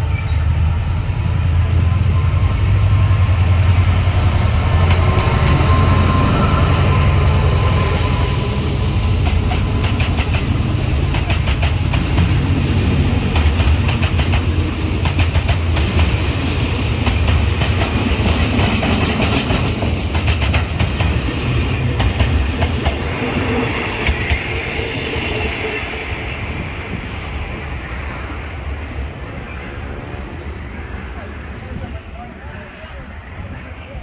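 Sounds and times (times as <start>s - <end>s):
low train rumble: 0.0s - 34.0s.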